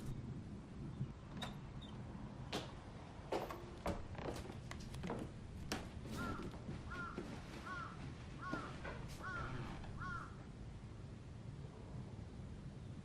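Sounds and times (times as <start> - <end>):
bird calling: 6.1 - 10.4.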